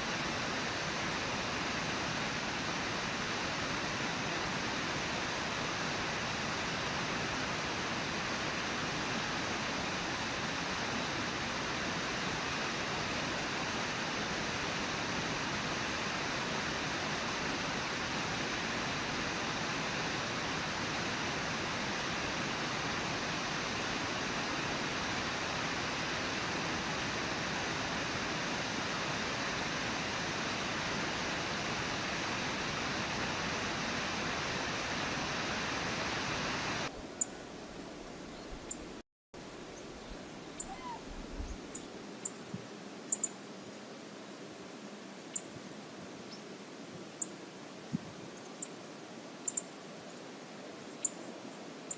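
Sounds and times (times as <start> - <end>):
river rushing over waterfall: 0.0 - 37.0.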